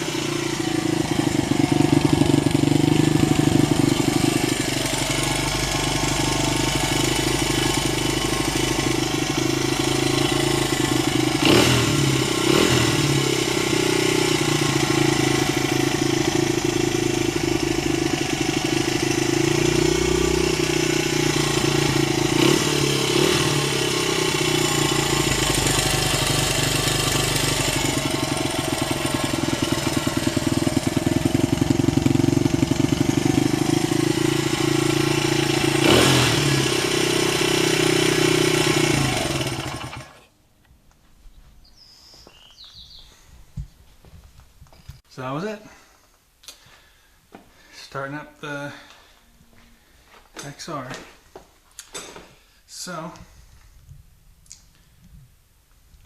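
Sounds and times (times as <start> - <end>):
motorcycle engine idling: 0.0 - 40.3.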